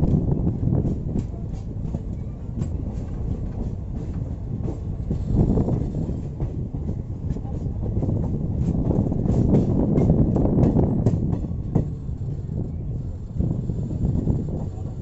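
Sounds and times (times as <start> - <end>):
train rumbling along track: 0.0 - 15.0.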